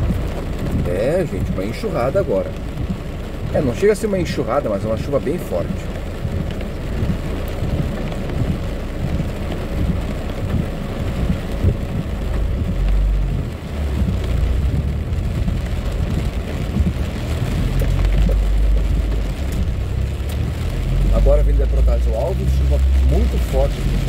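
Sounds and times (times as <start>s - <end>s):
car engine and tyres rumbling: 0.0s - 24.0s
heavy rain on car roof: 0.0s - 24.0s.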